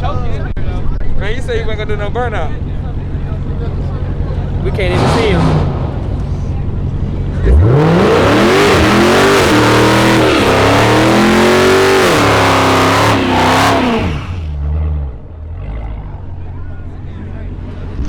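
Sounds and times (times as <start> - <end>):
car engine revving high: 4.4 - 16.3.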